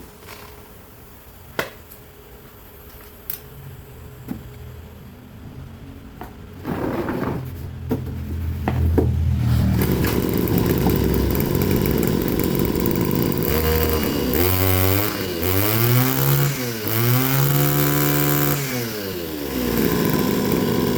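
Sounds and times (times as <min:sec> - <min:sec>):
brush cutter engine revving: 0:09.4 - 0:20.9.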